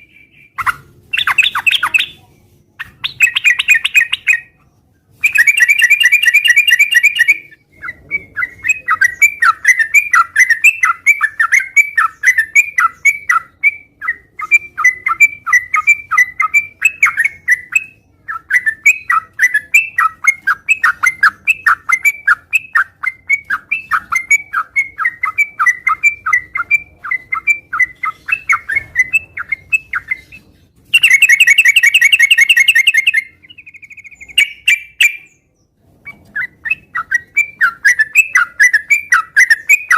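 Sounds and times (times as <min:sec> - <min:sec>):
bird singing chattering trills: 0:00.0 - 0:04.6, 0:05.2 - 0:35.8.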